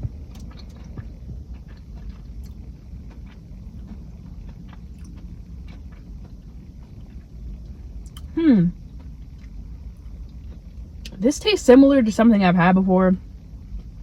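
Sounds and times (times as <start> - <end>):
chewing crunches: 0.0 - 11.2.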